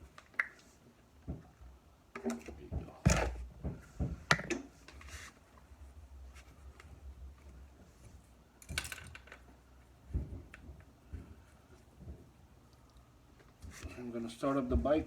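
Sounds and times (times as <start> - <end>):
clicks and knocks of handling: 0.1 - 5.2, 8.6 - 14.0.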